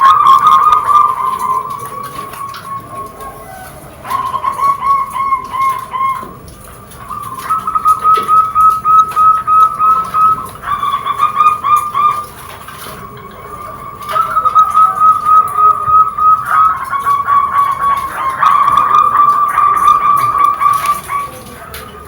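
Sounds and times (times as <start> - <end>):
dove cooing: 0.0 - 22.0.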